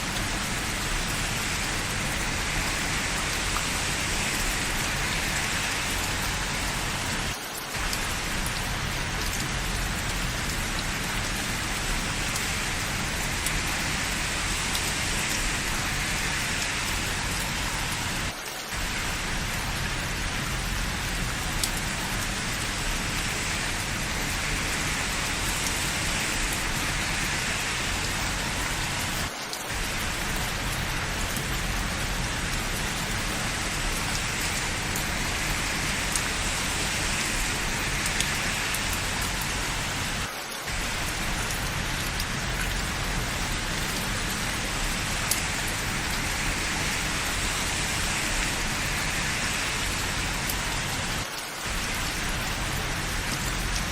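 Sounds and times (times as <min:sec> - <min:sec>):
steady rain hiss: 0:00.0 - 0:53.9
sharp drip ticks: 0:07.8 - 0:18.3, 0:27.7 - 0:40.2, 0:40.8 - 0:51.0.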